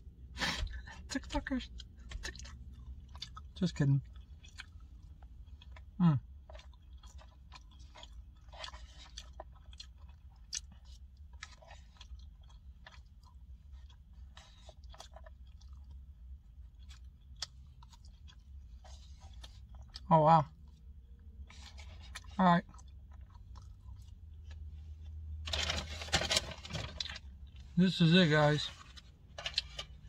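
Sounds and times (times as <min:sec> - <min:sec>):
low steady hum: 0:00.0 - 0:30.0
man chewing: 0:01.7 - 0:25.2.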